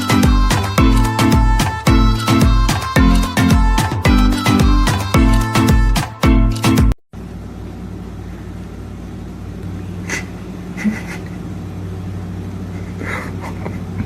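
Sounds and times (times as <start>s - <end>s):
music: 0.0s - 7.0s.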